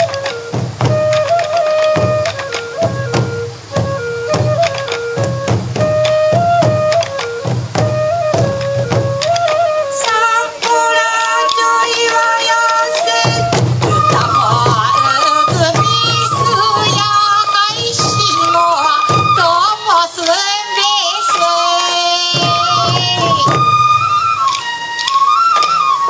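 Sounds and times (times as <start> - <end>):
taiko drum beats: 0.0 - 20.4, 21.0 - 26.0
bamboo flute melody: 0.0 - 26.0
person singing: 10.0 - 23.6.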